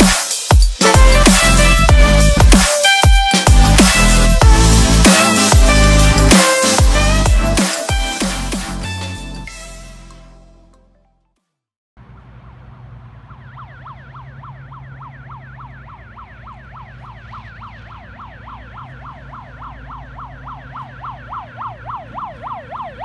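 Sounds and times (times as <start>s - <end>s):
emergency siren yelping: 0.8s - 9.3s, 13.2s - 23.0s
music track: 0.8s - 11.3s
vehicle engine rumble: 0.9s - 2.6s, 3.5s - 7.6s, 12.0s - 23.0s.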